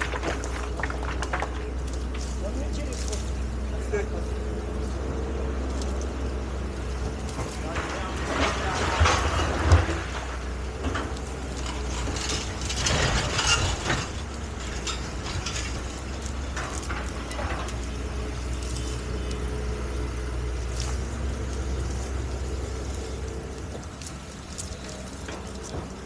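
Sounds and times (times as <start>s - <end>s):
excavator diesel engine running: 0.0s - 26.0s
metallic clanking and rattling: 7.0s - 18.9s.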